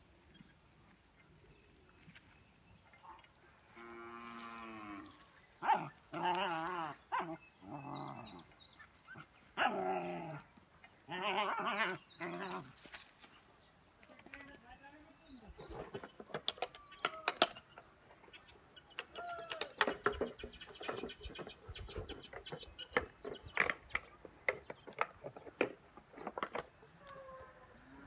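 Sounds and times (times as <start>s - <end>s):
birds chirping: 0.0s - 28.0s
chickens clucking: 15.6s - 27.2s.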